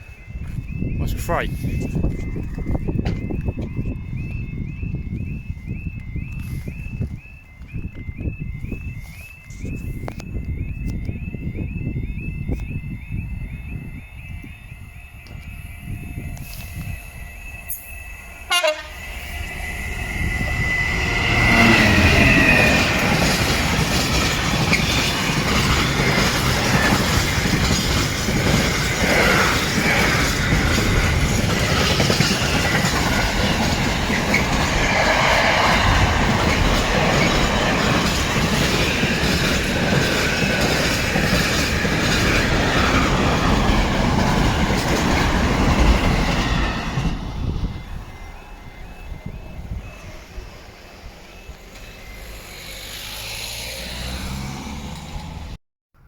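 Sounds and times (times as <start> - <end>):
train wheels clattering on rails: 1.8 - 4.4, 18.5 - 55.5
train horn: 18.4 - 23.0.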